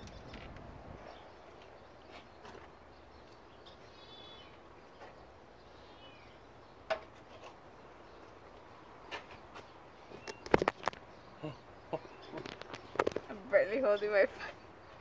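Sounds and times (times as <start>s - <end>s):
faint bird calls: 10.0s - 13.4s.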